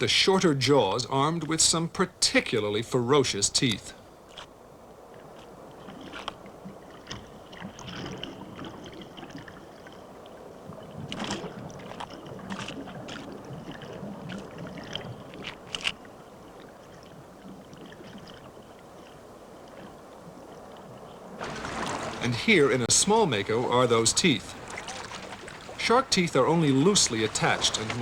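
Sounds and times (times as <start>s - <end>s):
water sloshing and lapping: 0.0s - 28.0s
sharp water splashes: 21.3s - 28.0s.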